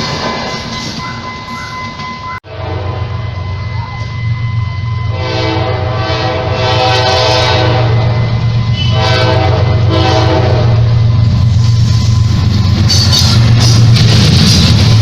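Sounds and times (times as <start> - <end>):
moving train rumble: 0.0 - 15.0
train horn blasts: 2.4 - 4.1, 4.9 - 10.9.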